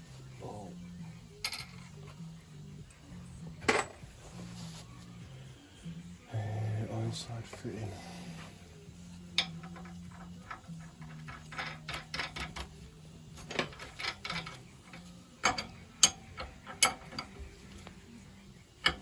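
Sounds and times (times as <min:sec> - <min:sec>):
metallic clicks of parts handled: 0:09.3 - 0:17.4.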